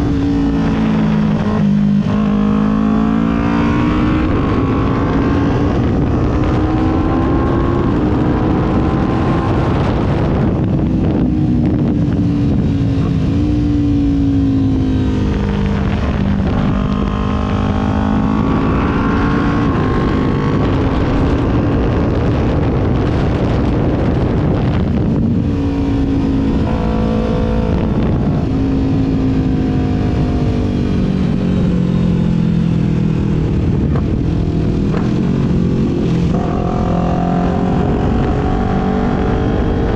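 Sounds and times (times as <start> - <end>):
motorcycle engine revving: 0.0 - 39.9
wind rushing: 0.0 - 39.9.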